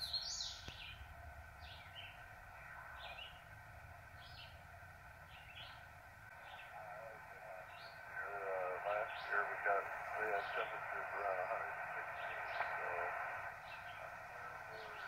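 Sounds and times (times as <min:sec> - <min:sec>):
high bird chirps: 0:00.0 - 0:02.2
radio static hiss: 0:00.0 - 0:15.0.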